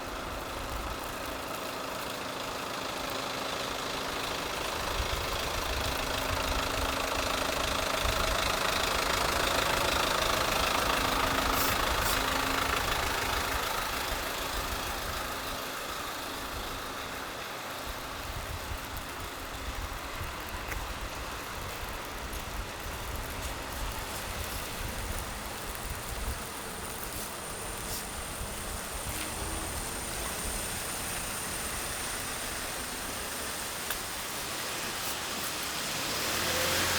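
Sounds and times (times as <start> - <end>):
vehicle engine running: 0.0 - 36.9.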